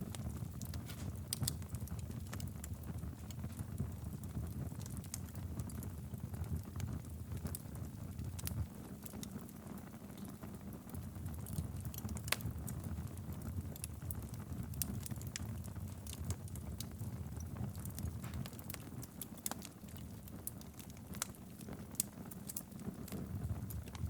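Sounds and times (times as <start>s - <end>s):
fire crackles and pops: 0.0s - 24.0s
fire flames rumbling: 0.0s - 24.0s.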